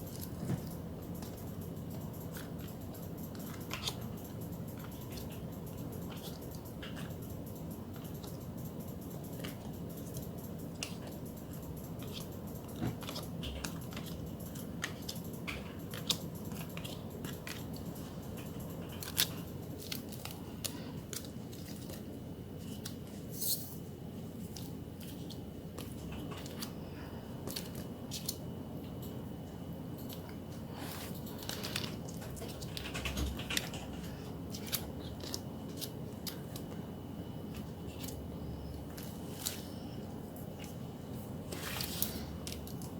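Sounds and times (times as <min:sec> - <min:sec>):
steady low hum: 0:00.0 - 0:42.9
plastic sleeves clicking and crinkling: 0:02.3 - 0:05.4, 0:12.0 - 0:22.0, 0:24.5 - 0:26.8, 0:27.4 - 0:28.4, 0:30.1 - 0:36.8, 0:41.5 - 0:42.9.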